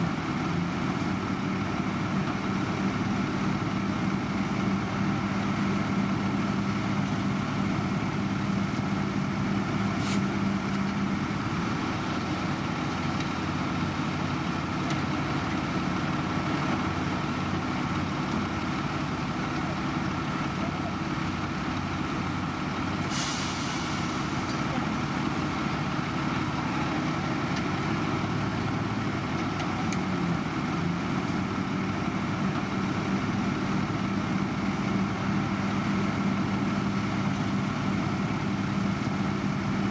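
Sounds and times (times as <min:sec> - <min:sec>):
heavy diesel machinery running: 0:00.0 - 0:39.9
hissing air burst: 0:23.0 - 0:24.4.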